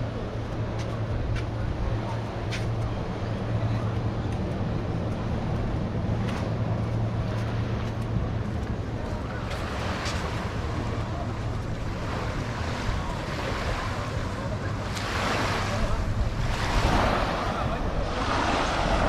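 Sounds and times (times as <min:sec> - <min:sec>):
small waves washing onto beach: 0:00.0 - 0:19.0
wave breaking: 0:00.9 - 0:19.0
wind on microphone: 0:04.7 - 0:19.0.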